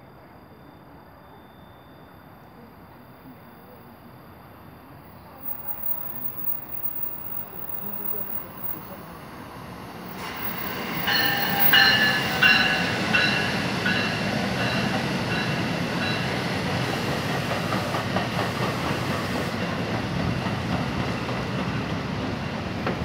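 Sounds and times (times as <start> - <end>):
train wheels rumbling on rail: 5.1 - 23.0
repeating ringing tone: 5.4 - 9.0.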